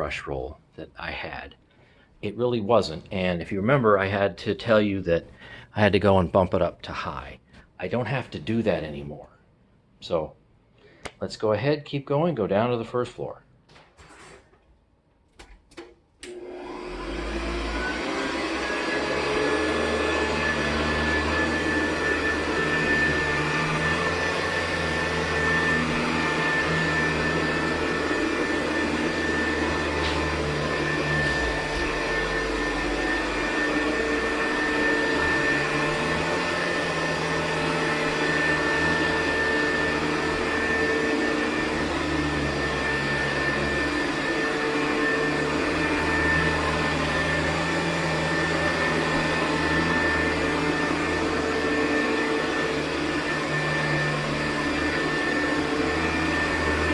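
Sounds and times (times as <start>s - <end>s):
vacuum cleaner running: 15.8s - 56.9s.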